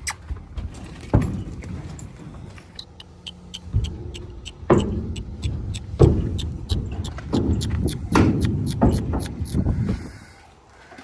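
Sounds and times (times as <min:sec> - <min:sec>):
vehicle engine low rumble: 0:00.3 - 0:10.2.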